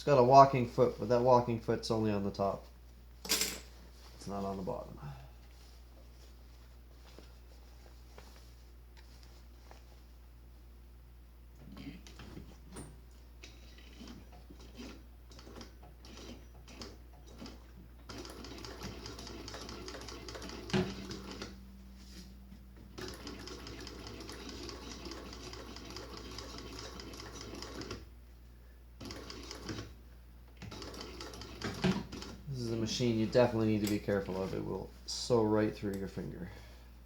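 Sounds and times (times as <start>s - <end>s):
sewing machine stitching: 13.5s - 21.6s, 23.0s - 28.1s, 29.0s - 30.0s, 30.6s - 32.4s.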